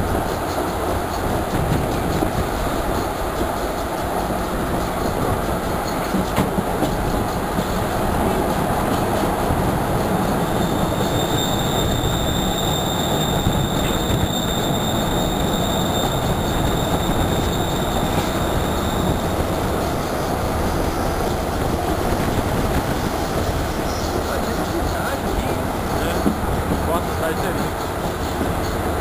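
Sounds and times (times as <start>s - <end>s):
train rumbling on track: 0.0s - 29.0s
high wheel squeal: 9.3s - 21.3s, 22.9s - 29.0s.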